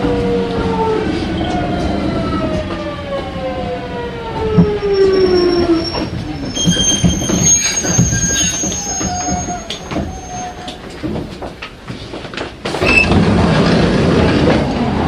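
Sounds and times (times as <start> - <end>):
high-pitched brake squeal: 4.8 - 10.8
wheels knocking over rail joints: 6.1 - 15.0.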